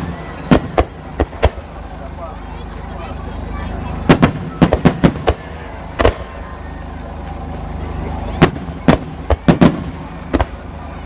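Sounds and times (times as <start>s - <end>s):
firework shells bursting: 0.0s - 2.1s, 4.1s - 7.7s, 8.4s - 10.8s.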